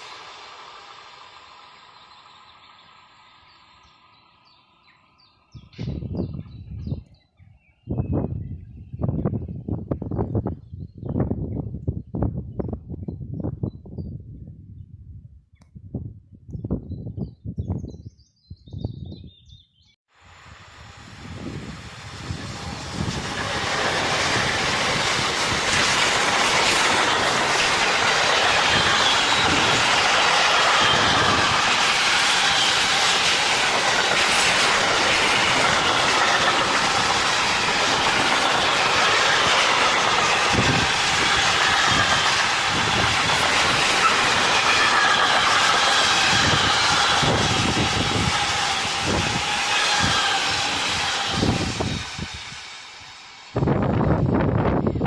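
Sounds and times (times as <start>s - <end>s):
train wheels clattering: 22.4s - 52.8s.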